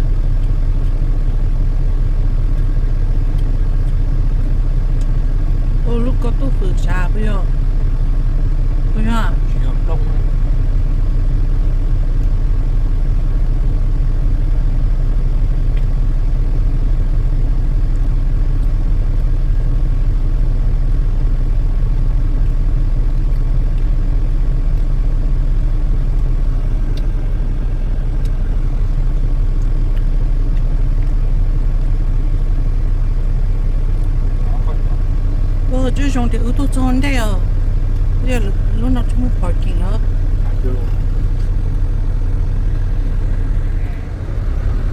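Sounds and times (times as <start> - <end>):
faint steady whine: 0.0 - 44.9
truck engine running: 0.0 - 44.9.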